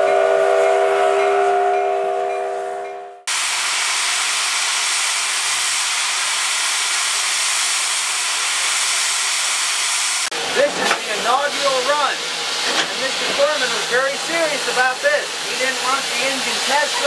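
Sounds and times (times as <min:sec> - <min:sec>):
steam locomotive whistle: 0:00.0 - 0:03.4
steam hissing: 0:03.3 - 0:17.0.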